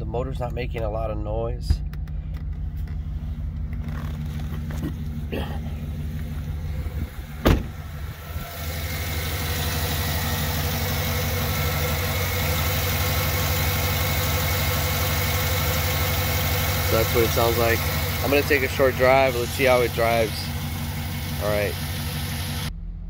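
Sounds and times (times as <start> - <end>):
car engine idling: 0.0 - 23.0
loud thump: 6.9 - 7.9.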